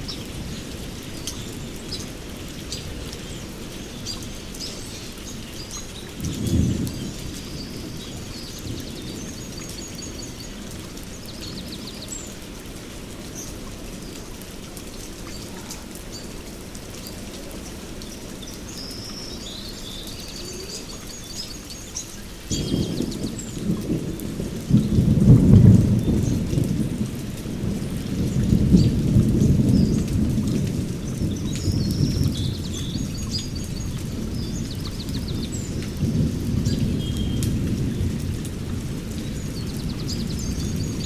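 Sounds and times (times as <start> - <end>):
rain on forest canopy: 0.0 - 41.0
thunder rumbling: 6.0 - 10.9, 22.5 - 41.0.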